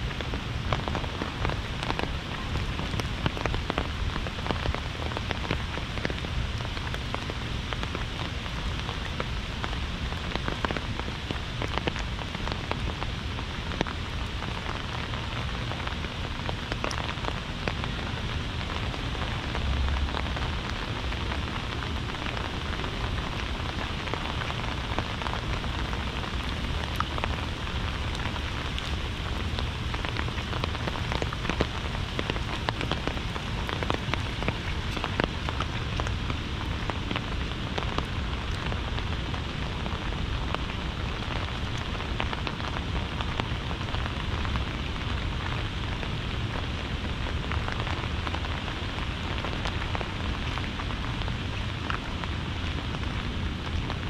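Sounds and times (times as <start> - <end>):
heavy rain falling: 0.0 - 54.0
low rumble: 18.1 - 38.7.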